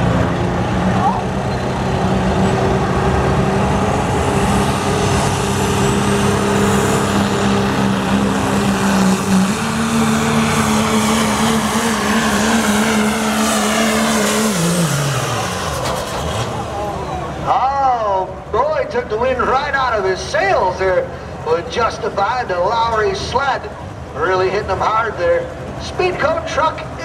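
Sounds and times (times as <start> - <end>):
diesel truck engine at high revs: 0.0 - 27.0.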